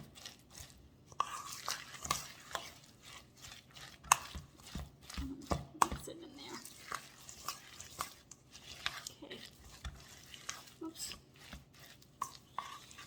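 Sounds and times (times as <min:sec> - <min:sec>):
spoon scraping sticky mix: 0:00.0 - 0:13.0.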